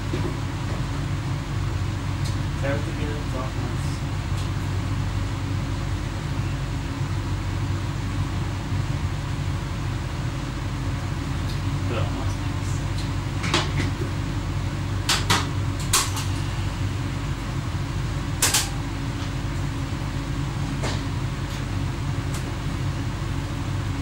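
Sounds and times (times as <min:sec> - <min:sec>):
train cab running drone: 0:00.0 - 0:24.0
sharp clicks and knocks: 0:18.4 - 0:18.8.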